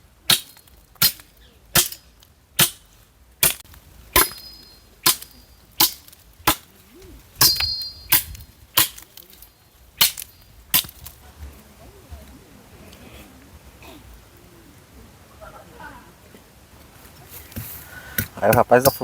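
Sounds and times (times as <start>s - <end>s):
axe chopping firewood: 0.3s - 6.8s, 7.4s - 11.2s, 17.6s - 19.0s.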